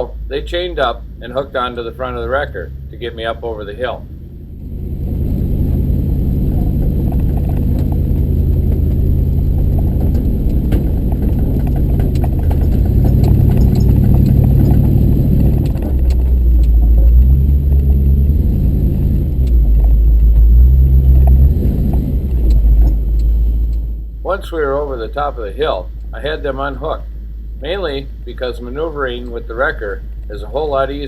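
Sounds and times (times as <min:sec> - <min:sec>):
truck engine under load: 0:00.0 - 0:31.0.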